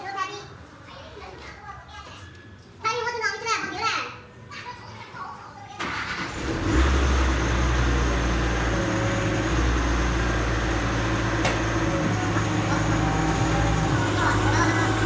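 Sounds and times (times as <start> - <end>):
diesel engine running: 5.8 - 15.0.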